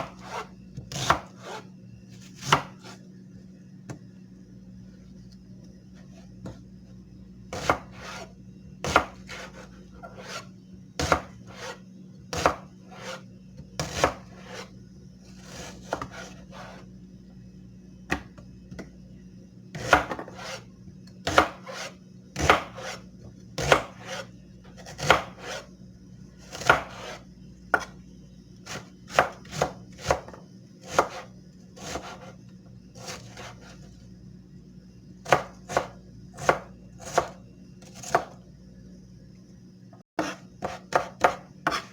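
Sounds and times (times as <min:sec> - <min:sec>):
knife strokes on hard surface: 0:00.0 - 0:00.5, 0:01.3 - 0:01.7, 0:07.9 - 0:08.4, 0:09.2 - 0:10.5, 0:11.4 - 0:11.8, 0:12.8 - 0:13.3, 0:14.3 - 0:14.7, 0:15.4 - 0:16.9, 0:20.2 - 0:20.7, 0:21.6 - 0:22.0, 0:22.7 - 0:23.0, 0:23.9 - 0:24.3, 0:25.3 - 0:25.7, 0:26.9 - 0:27.3, 0:40.2 - 0:41.9
steady low hum: 0:00.0 - 0:41.9.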